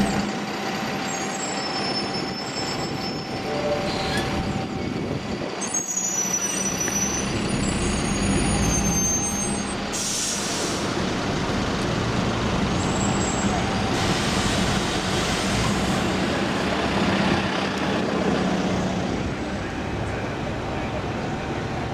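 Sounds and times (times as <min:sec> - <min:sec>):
bus engine hum: 0:00.0 - 0:01.6, 0:06.4 - 0:21.9
traffic noise: 0:00.0 - 0:21.9
air brakes hiss: 0:09.9 - 0:10.9.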